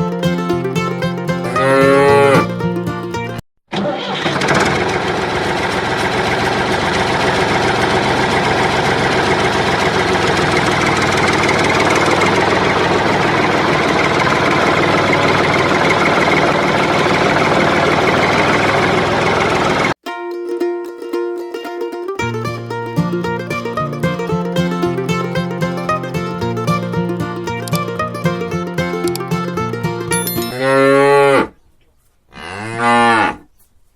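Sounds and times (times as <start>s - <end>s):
diesel tractor engine running: 4.4s - 19.9s.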